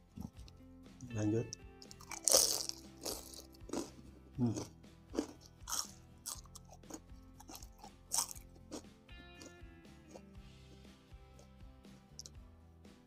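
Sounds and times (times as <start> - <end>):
soft background music: 0.0 - 13.0
crunching fried snack: 1.8 - 9.5.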